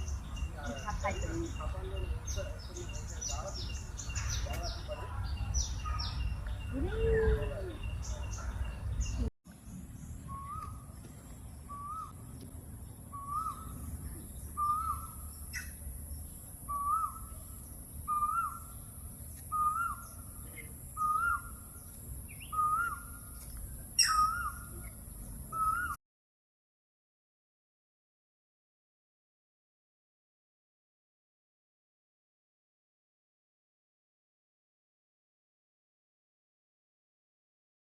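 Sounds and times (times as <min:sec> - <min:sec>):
low outdoor rumble: 0:00.0 - 0:25.8
faint bird chirps: 0:00.0 - 0:26.0.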